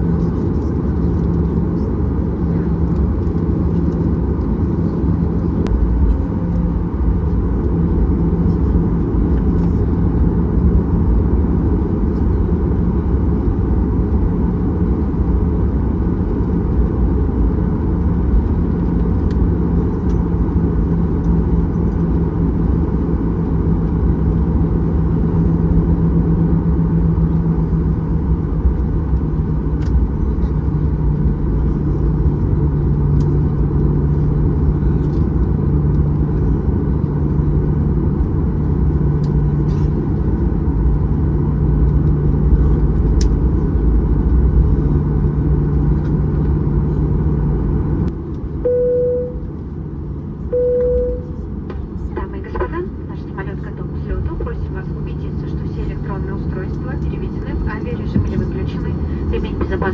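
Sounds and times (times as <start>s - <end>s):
airplane cabin rumble: 0.0s - 59.9s.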